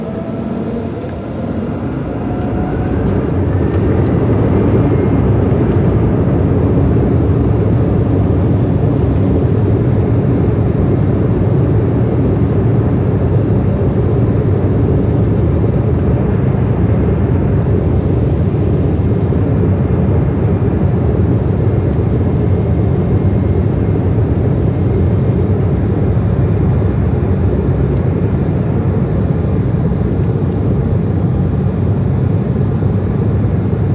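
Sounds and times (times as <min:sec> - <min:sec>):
jet engines spooling up: 0:00.0 - 0:10.0.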